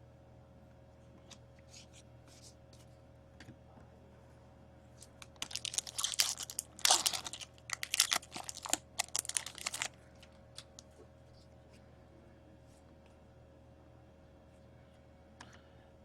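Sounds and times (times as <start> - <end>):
foil wrapper tearing and crinkling: 5.0 - 10.8.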